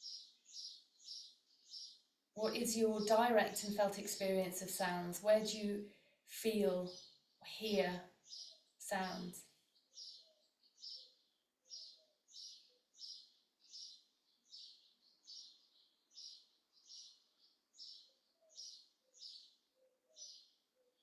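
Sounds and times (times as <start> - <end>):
bird chirping faintly: 6.5 - 21.0.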